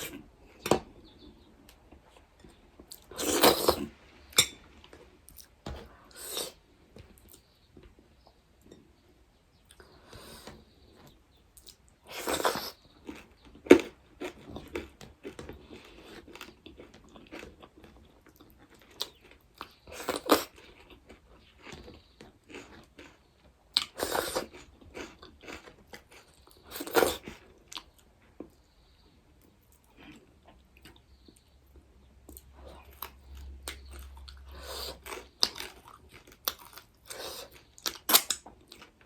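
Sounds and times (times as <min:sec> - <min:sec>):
chewing crunchy food: 0:09.7 - 0:28.6, 0:29.4 - 0:39.0.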